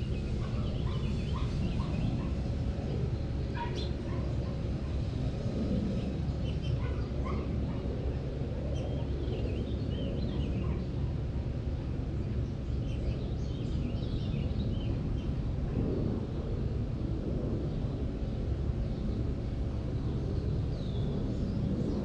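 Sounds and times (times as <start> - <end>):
birds chirping and calling: 0.0 - 5.2, 5.9 - 7.9, 8.7 - 11.0
steady low rumble: 0.0 - 22.0.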